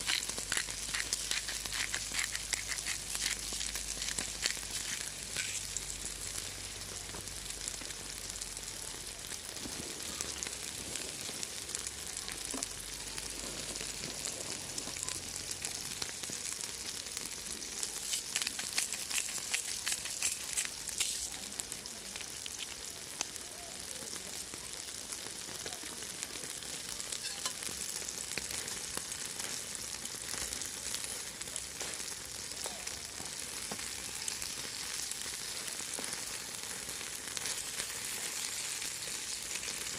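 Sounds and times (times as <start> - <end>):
food sizzling on a griddle: 0.0 - 39.9.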